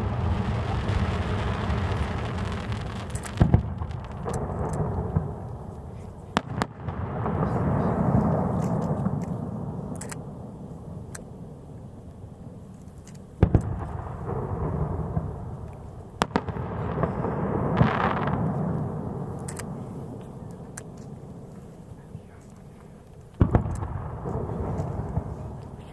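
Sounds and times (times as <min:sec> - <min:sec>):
rolling rumble: 0:00.0 - 0:09.7
firework bangs: 0:00.0 - 0:25.9
firework crackles: 0:00.0 - 0:25.9.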